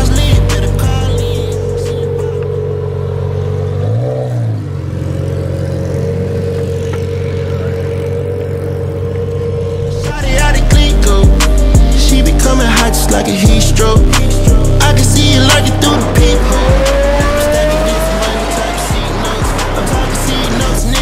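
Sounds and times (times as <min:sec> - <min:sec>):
music: 0:00.0 - 0:03.3, 0:09.8 - 0:21.0
car engine idling: 0:00.0 - 0:21.0.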